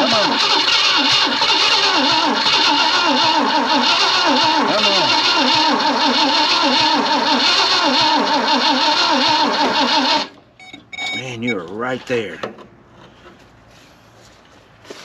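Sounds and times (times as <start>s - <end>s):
starter cranking engine: 0.0s - 10.4s.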